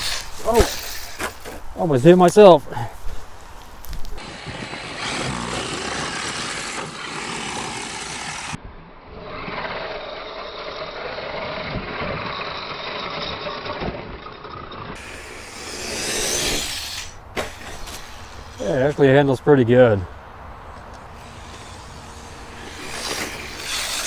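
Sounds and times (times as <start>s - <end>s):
toy truck tyre noise: 0.0s - 24.0s
electric motor whine: 15.0s - 18.7s, 20.7s - 24.0s.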